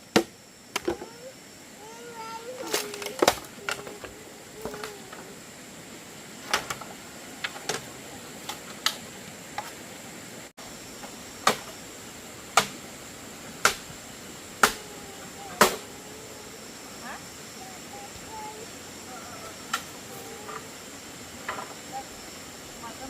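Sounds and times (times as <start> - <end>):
tool striking bamboo: 11.4 - 11.7, 12.6 - 12.8, 13.6 - 13.9, 14.6 - 14.8.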